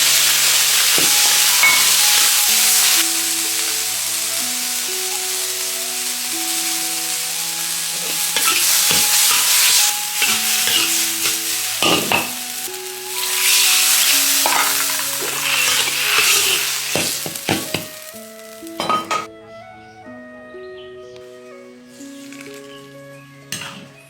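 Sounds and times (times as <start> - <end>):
food sizzling in a hot pan: 0.0 - 19.3
soft background music: 0.0 - 24.0
spatula scraping a pan: 8.0 - 12.3, 13.2 - 17.8.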